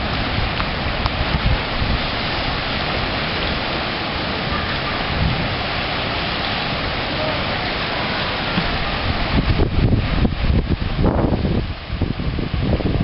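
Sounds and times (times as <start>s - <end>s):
rough water: 0.0s - 13.0s
strong wind roaring: 0.0s - 13.0s
wind gusts buffeting microphone: 0.0s - 13.0s.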